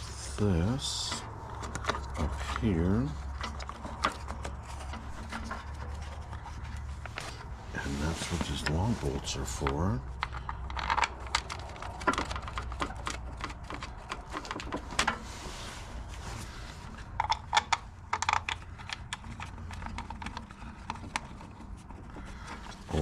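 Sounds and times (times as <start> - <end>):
rubbing sound: 0.0 - 10.1, 11.4 - 17.2
steady low hum: 0.0 - 12.2.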